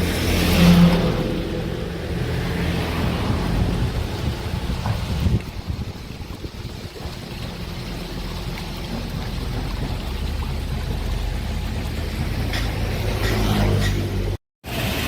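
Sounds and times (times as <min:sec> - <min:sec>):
excavator diesel engine: 0:07.0 - 0:15.0.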